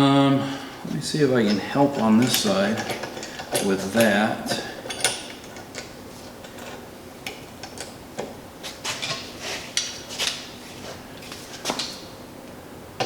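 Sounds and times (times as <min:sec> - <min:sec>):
tools and steel parts clinking: 0:01.4 - 0:06.8.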